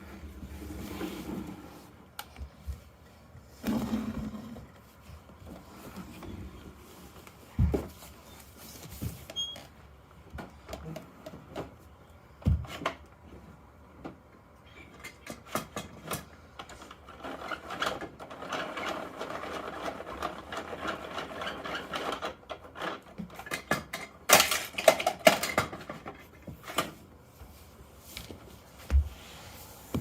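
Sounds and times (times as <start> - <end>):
plastic toy truck clicking and rattling: 14.9 - 27.0.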